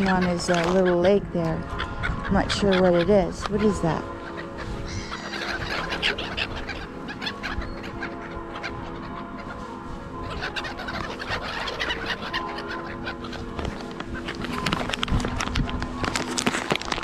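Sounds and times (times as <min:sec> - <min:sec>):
background music: 0:00.0 - 0:17.0
gulls and crows calling: 0:00.0 - 0:17.0.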